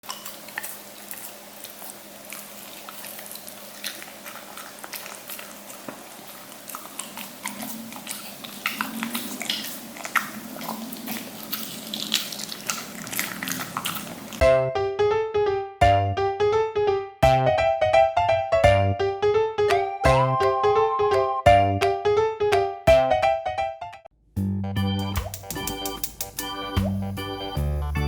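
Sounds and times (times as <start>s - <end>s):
dog chewing and eating: 0.0s - 14.4s
mouth clicks and smacks: 6.8s - 14.3s.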